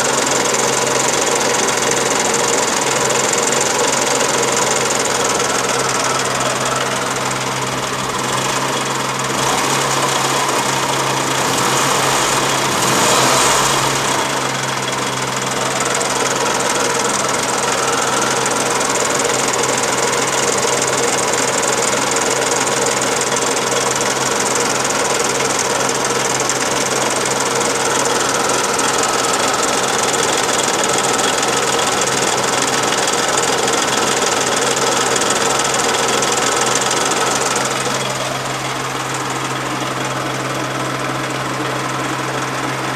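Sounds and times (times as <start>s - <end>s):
car engine knocking and rattling: 0.0s - 42.9s.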